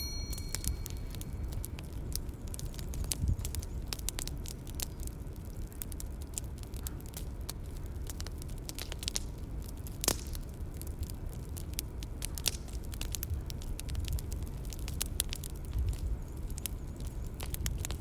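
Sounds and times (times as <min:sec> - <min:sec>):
low steady rumble: 0:00.0 - 0:08.6
bonfire crackling and popping: 0:00.0 - 0:18.0.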